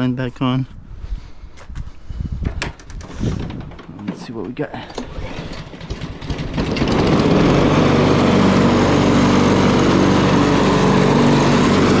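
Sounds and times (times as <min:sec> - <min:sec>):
lawnmower engine running: 0:04.8 - 0:12.0.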